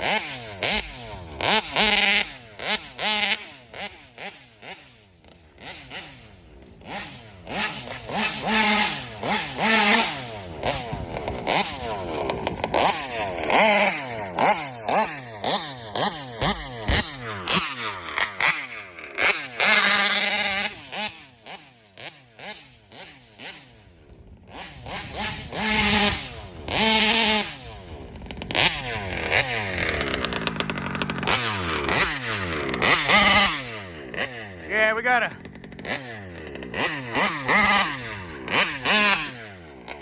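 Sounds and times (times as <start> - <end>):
rc car two-stroke engine revving: 0.0 - 40.0.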